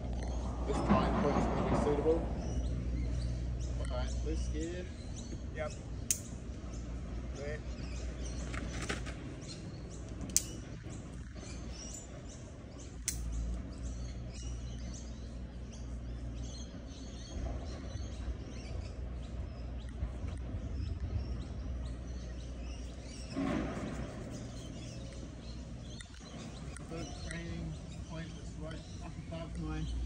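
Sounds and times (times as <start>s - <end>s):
birds chirping: 0.0s - 30.0s
low steady rumble: 0.0s - 30.0s
sharp click: 6.0s - 6.3s, 10.1s - 10.6s, 13.0s - 13.4s.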